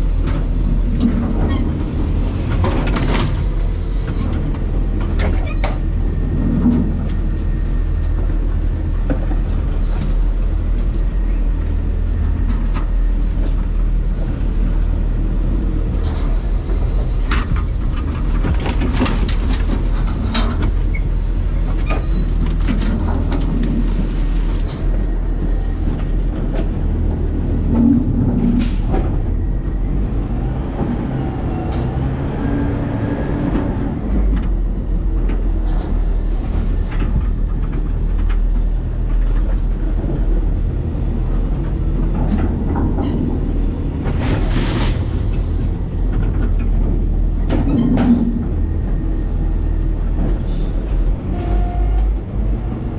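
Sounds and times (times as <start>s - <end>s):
garbage truck engine rumble: 0.0s - 52.9s
rattling and clattering: 15.8s - 29.3s.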